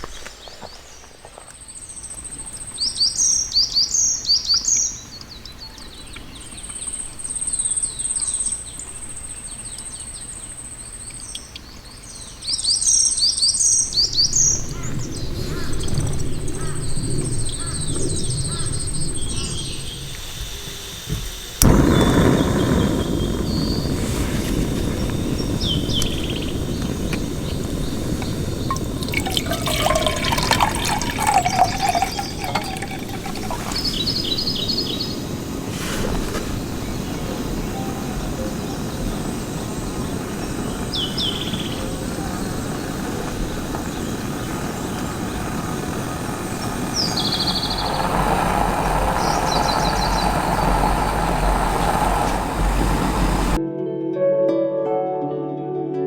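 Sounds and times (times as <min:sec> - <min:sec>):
small birds chirping: 0:00.0 - 0:53.6
thin high steady tone: 0:14.1 - 0:53.6
loud steady rushing noise: 0:14.5 - 0:53.6.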